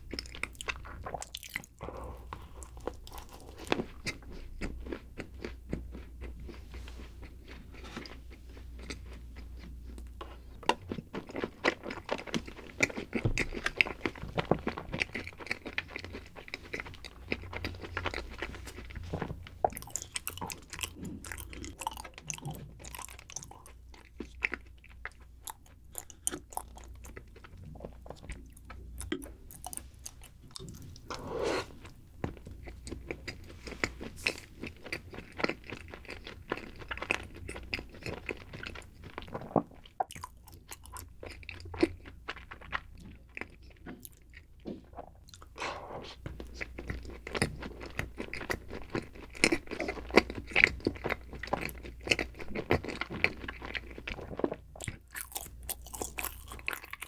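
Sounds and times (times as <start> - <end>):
chocolate coating crunching: 46.5 - 57.0.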